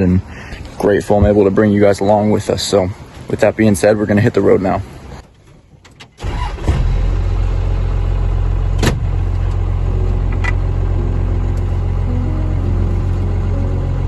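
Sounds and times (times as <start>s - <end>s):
diesel engine starting and idling: 6.0s - 14.0s.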